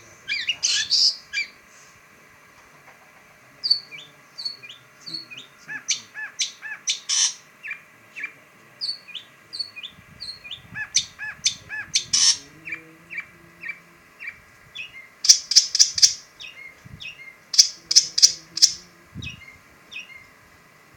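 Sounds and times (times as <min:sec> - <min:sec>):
bird chirping: 0:00.2 - 0:01.6, 0:03.6 - 0:20.3
raspy bird notes: 0:03.6 - 0:20.3.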